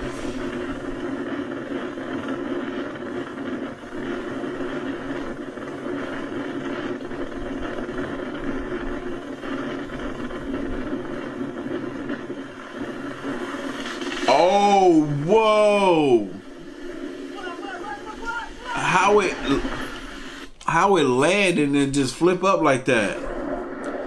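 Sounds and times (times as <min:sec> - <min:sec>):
aircraft engine droning: 0:00.0 - 0:01.3, 0:08.3 - 0:24.0.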